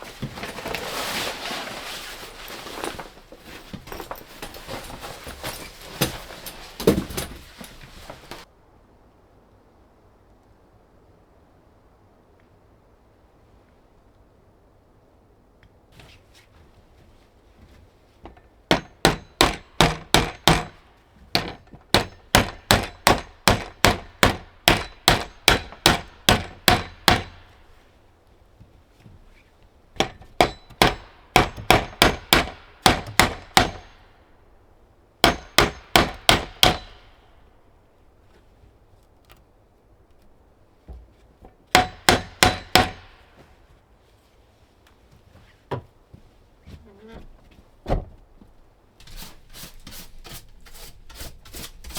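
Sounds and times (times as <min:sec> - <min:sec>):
hammer striking metal: 0:18.7 - 0:20.8, 0:21.4 - 0:27.5, 0:30.0 - 0:34.1, 0:35.2 - 0:37.2, 0:41.7 - 0:43.3.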